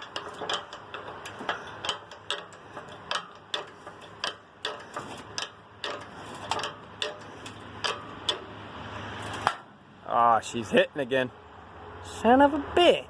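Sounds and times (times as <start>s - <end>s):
chain hoist ratchet clicking: 0.0s - 8.6s.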